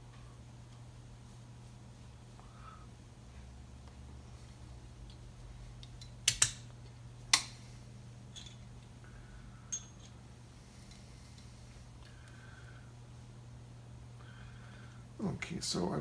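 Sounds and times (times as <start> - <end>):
small metal parts clicking: 5.8 - 6.6, 8.3 - 8.7, 9.7 - 10.2.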